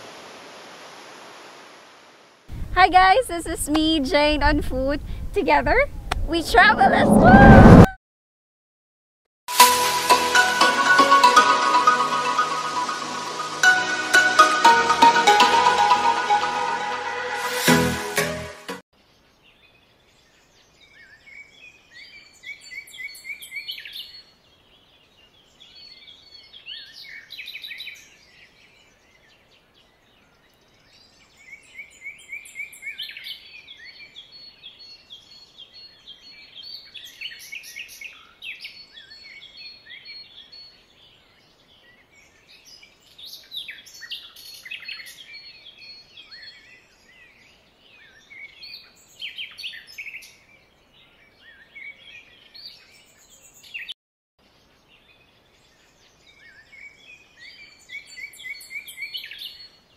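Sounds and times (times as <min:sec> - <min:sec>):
faint outdoor hiss: 0:00.0 - 0:06.8, 0:19.0 - 0:53.8, 0:54.4 - 0:59.9
songbirds chirping and singing: 0:19.0 - 0:59.9.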